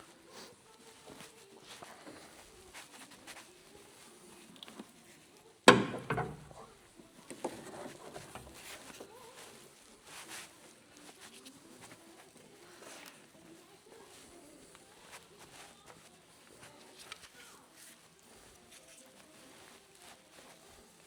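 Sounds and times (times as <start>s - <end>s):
tools clicking and clattering: 5.7s - 6.7s.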